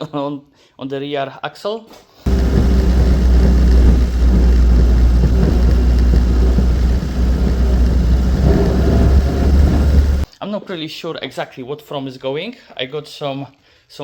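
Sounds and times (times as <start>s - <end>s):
car engine droning: 2.3s - 10.3s.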